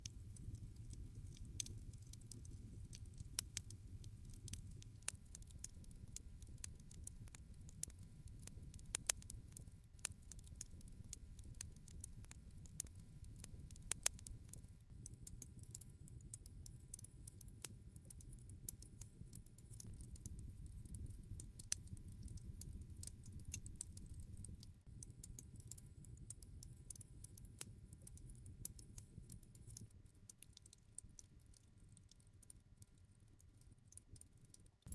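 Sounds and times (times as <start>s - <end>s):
campfire crackling: 0.0s - 5.5s.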